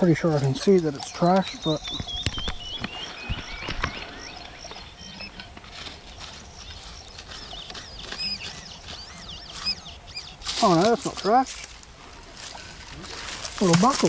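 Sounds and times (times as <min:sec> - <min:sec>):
birds singing: 0:00.0 - 0:14.0.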